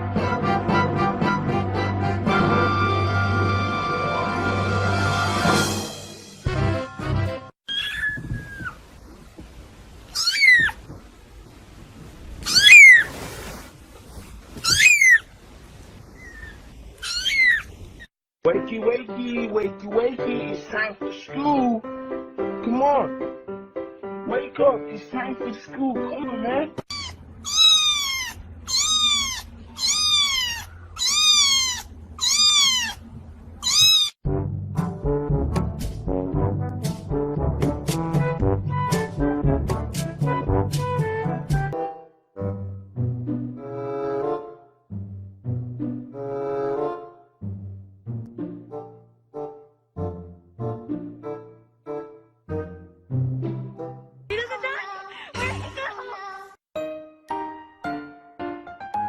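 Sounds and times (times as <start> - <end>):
cat meowing: 7.7 - 8.8, 10.1 - 10.8, 12.4 - 13.2, 14.6 - 15.3, 16.2 - 17.8, 26.9 - 34.2.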